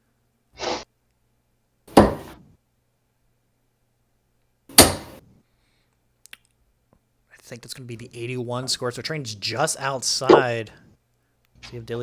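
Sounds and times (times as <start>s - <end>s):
darts thudding into dartboard: 1.9s - 2.4s, 4.7s - 5.2s.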